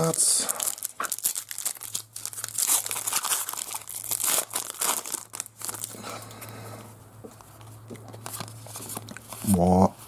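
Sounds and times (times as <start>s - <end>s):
foil wrappers crinkling: 0.0s - 6.3s.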